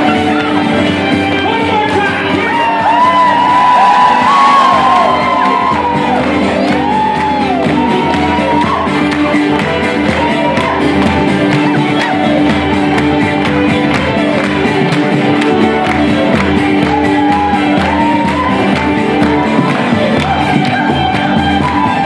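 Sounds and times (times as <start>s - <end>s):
fiddle: 0.0s - 22.0s
guitar: 0.0s - 22.0s
flute: 16.8s - 22.0s.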